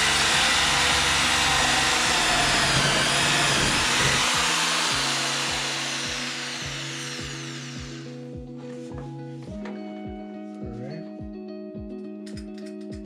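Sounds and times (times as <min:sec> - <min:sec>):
electric drill whining: 0:00.0 - 0:08.2.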